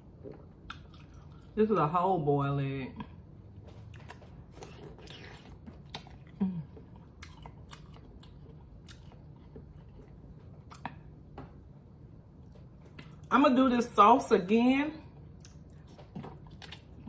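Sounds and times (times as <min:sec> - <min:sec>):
chewing and biting food: 0:00.0 - 0:01.6, 0:03.5 - 0:11.4, 0:12.4 - 0:13.3, 0:15.2 - 0:17.0.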